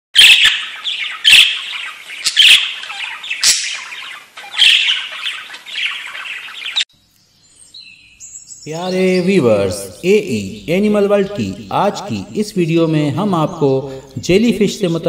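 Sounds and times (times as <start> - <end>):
bird squawking harshly: 0.2 - 6.5.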